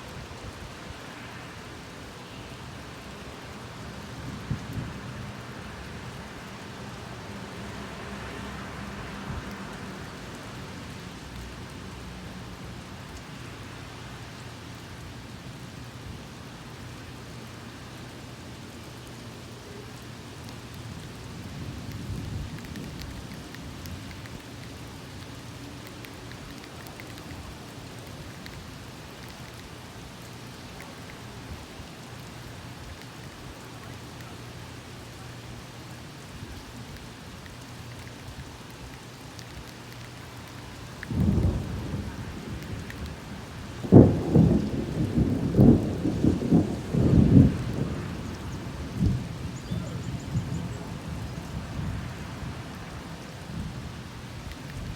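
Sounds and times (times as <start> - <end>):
steady rain falling: 0.0 - 54.9
thunder rumble: 41.0 - 53.8.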